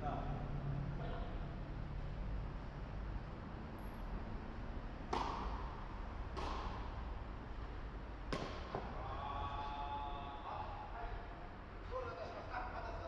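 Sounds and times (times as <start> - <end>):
racket hitting ball: 5.0 - 7.3, 8.3 - 9.0.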